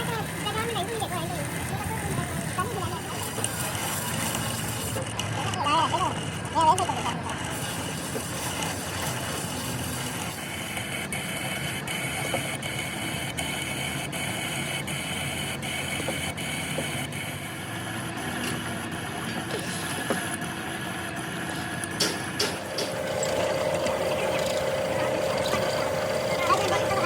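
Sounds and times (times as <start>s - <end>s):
engine idling: 16.7s - 27.0s.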